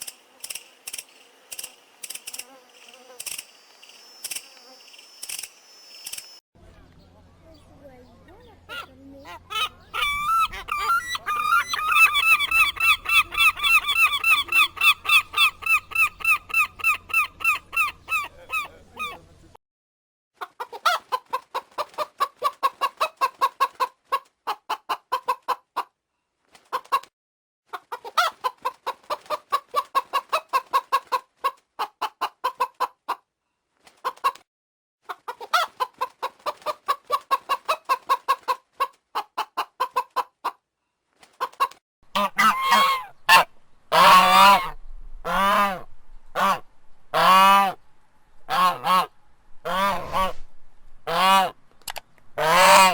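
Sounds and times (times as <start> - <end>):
fowl clucking: 8.7 - 19.3, 20.4 - 25.9, 27.7 - 33.2, 35.0 - 40.6, 41.4 - 46.6, 47.2 - 47.8, 48.5 - 50.4, 51.1 - 51.6, 52.4 - 52.9
fowl high-pitched calls: 8.7 - 19.3, 41.4 - 47.8, 48.5 - 50.4, 51.1 - 51.6, 52.4 - 52.9.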